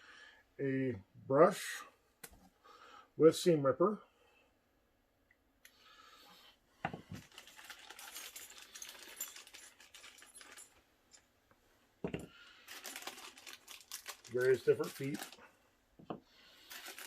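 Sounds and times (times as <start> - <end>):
small accessories clicking and rattling: 7.1 - 11.3, 12.1 - 15.4, 16.7 - 17.0.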